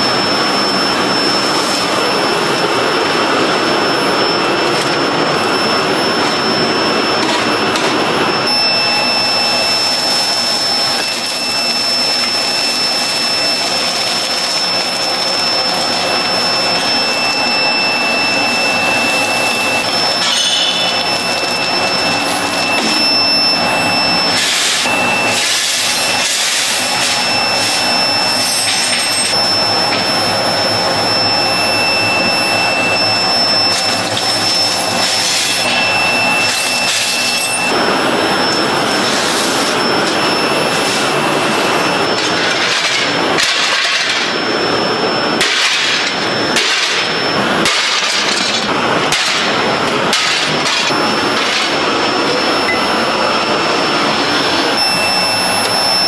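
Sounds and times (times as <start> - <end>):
workshop machinery whining: 0.0 - 56.0.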